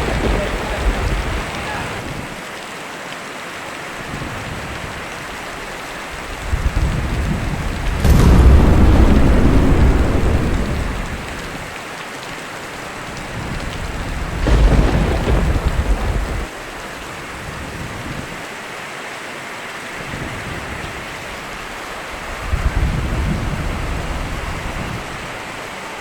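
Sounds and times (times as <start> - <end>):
thunder rumbling: 0.0 - 2.2, 6.2 - 11.8, 13.6 - 17.1
steady rain: 0.0 - 26.0.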